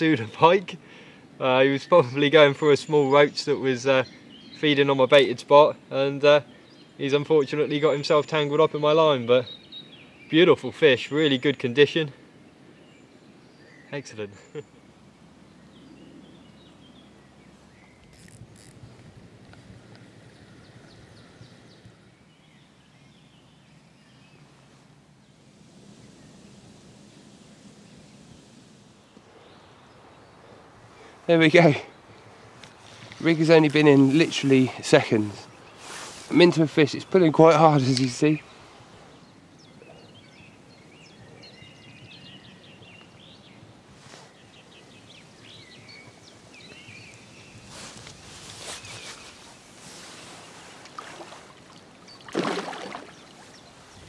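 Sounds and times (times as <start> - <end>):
small birds chirping: 0.0 - 26.4, 27.6 - 54.0
low outdoor background noise: 0.0 - 54.0
faint bird chirps: 34.2 - 54.0.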